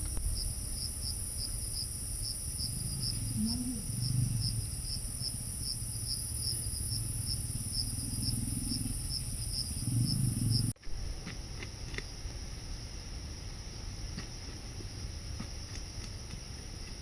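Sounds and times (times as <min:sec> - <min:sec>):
low rumble: 0:00.0 - 0:11.1
insect chirp: 0:00.0 - 0:17.0
insects droning: 0:00.0 - 0:17.0.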